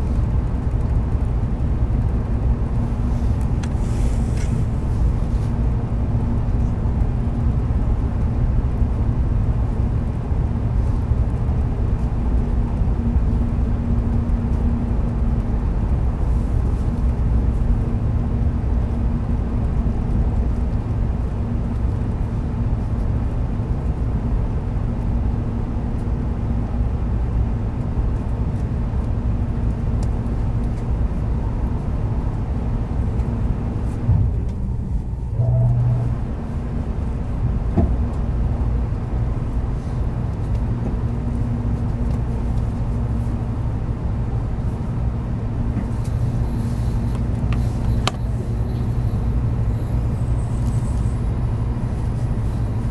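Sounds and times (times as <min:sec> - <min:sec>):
train rumble inside carriage: 0:00.0 - 0:52.9
faint hum: 0:29.3 - 0:52.9.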